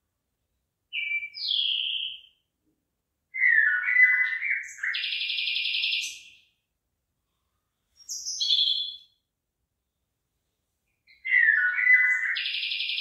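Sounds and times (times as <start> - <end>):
bird song with rattling trill: 0.9 - 2.3, 3.4 - 6.5, 8.0 - 9.2, 11.1 - 13.0.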